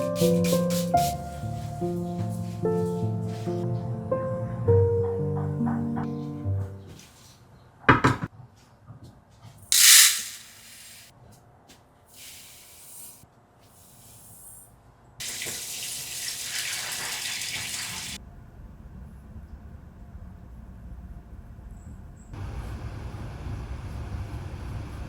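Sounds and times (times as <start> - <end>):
tap running into a sink: 15.2 - 18.2.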